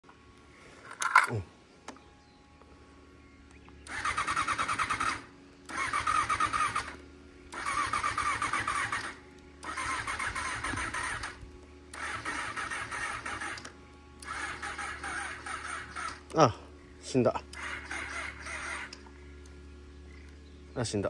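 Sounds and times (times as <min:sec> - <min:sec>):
motorcycle starter cranking: 0:03.8 - 0:16.4, 0:17.5 - 0:19.1.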